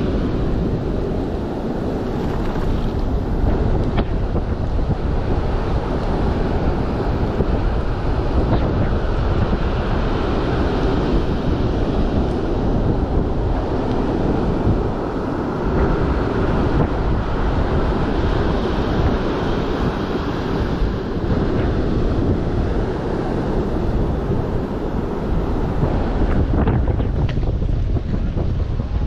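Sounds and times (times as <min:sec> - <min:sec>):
rough surf breaking: 0:00.0 - 0:29.0
wind buffeting microphone: 0:00.0 - 0:29.0.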